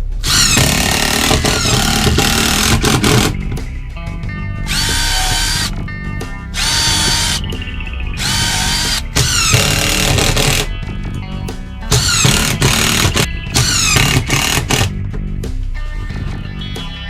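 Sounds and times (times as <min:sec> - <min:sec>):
background music: 0:00.0 - 0:17.0
power drill motor spinning: 0:00.2 - 0:03.4, 0:04.7 - 0:05.7, 0:06.6 - 0:07.4, 0:08.2 - 0:10.7, 0:11.9 - 0:14.9.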